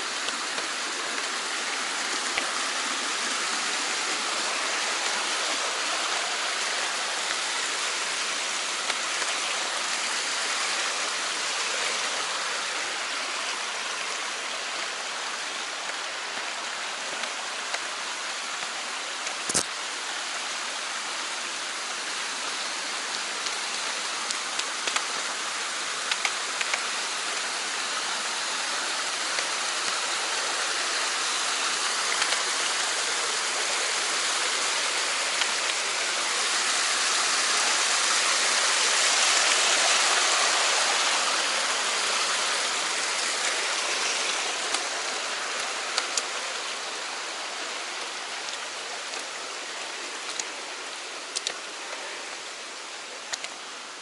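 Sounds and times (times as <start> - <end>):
stream rushing over rocks: 0.0 - 54.0
faint sharp clicks: 24.3 - 25.2, 26.1 - 26.8, 32.1 - 32.4, 51.3 - 51.7, 53.2 - 53.6.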